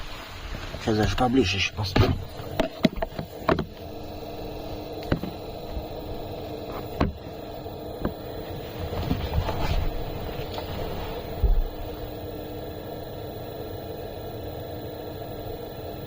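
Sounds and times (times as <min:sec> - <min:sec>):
heater blower humming: 0:00.0 - 0:16.0
phone handling knocks: 0:02.0 - 0:03.8.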